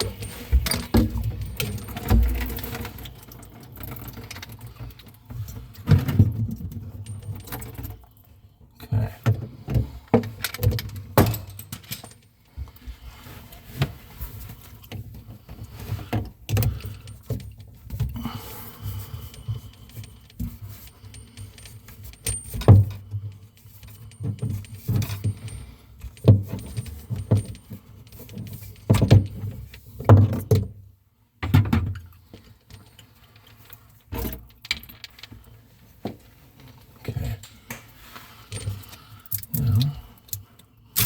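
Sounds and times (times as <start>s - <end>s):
metal plumbing tools clinking: 0.0s - 8.2s, 9.2s - 12.3s, 15.7s - 30.8s, 36.6s - 41.0s.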